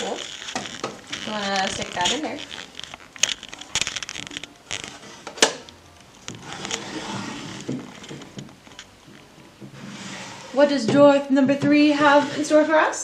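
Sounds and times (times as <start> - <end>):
small objects handled: 0.0 - 9.3
drawer pulled open: 6.3 - 8.4, 9.7 - 10.6.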